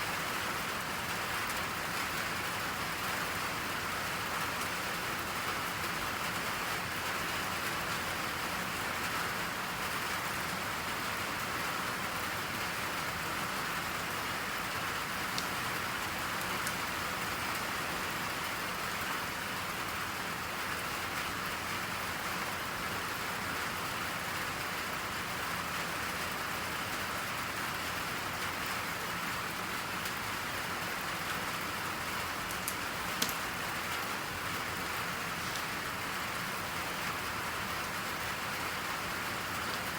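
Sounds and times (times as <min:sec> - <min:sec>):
steady rain falling: 0:00.0 - 0:39.9
faint clicks: 0:32.5 - 0:33.4.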